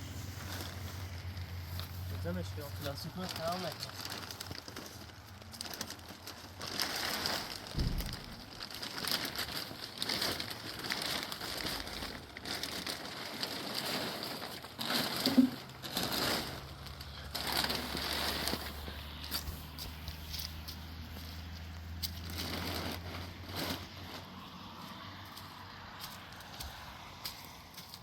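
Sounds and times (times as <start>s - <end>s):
plastic crinkling and rustling: 0.0s - 28.0s.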